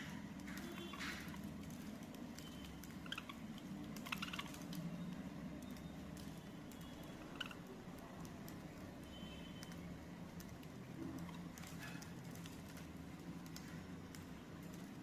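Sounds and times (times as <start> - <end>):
light clicks and taps: 0.0 - 4.9, 9.6 - 15.0
parrots chirping: 2.4 - 7.8.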